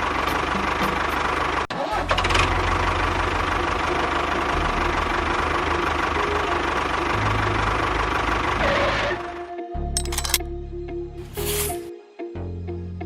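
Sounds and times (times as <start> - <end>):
small engine running: 10.0 - 10.4.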